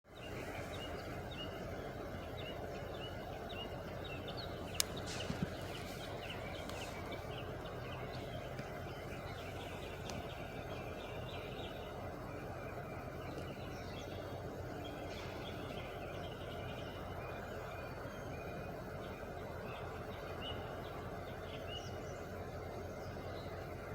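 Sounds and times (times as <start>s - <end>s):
birds chirping: 0.0s - 23.9s.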